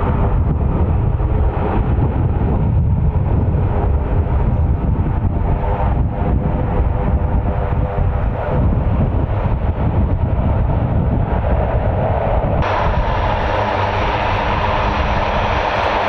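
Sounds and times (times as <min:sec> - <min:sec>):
jet engine rumble: 0:00.0 - 0:16.0.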